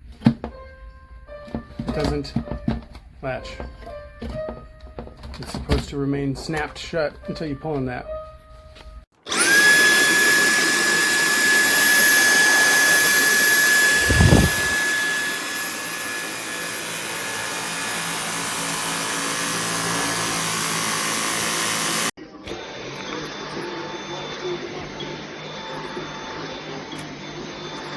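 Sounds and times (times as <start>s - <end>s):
vacuum cleaner motor whining: 9.2s - 27.9s.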